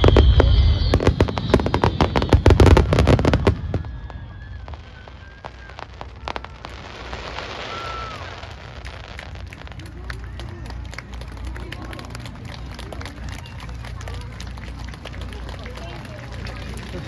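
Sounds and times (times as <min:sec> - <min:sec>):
fireworks bangs and crackles: 0:00.0 - 0:17.0
low rumble: 0:00.0 - 0:17.0
scattered firework pops: 0:00.0 - 0:17.0.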